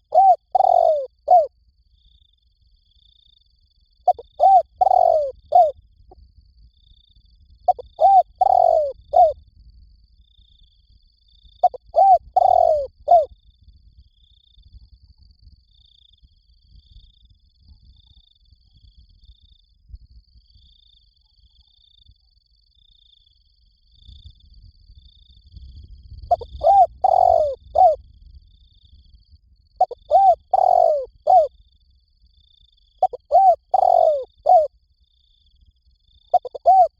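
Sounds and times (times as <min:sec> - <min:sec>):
dove cooing: 0:00.0 - 0:01.5, 0:04.1 - 0:05.7, 0:07.7 - 0:09.4, 0:11.6 - 0:13.3, 0:26.3 - 0:28.0, 0:29.8 - 0:31.5, 0:33.0 - 0:34.7, 0:36.3 - 0:36.9.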